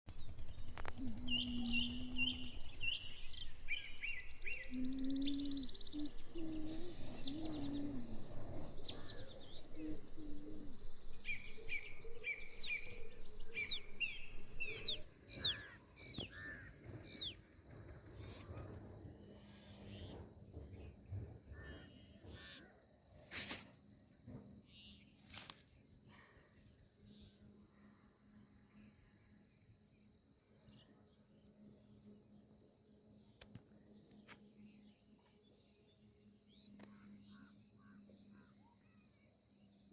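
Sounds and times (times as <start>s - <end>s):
low rumbling background noise: 0.1s - 23.1s
songbirds chirping: 0.1s - 39.9s.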